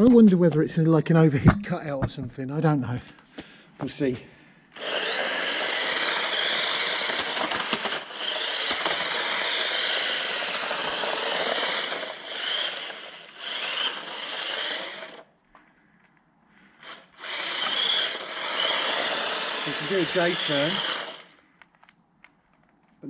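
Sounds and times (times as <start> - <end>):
toy car electric motor whining: 4.8 - 15.3, 16.7 - 21.4.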